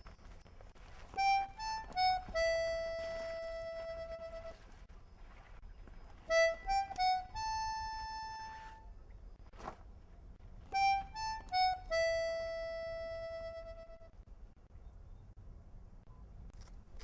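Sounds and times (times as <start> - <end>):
harmonica melody: 1.2 - 4.7, 6.3 - 8.9, 10.7 - 14.2.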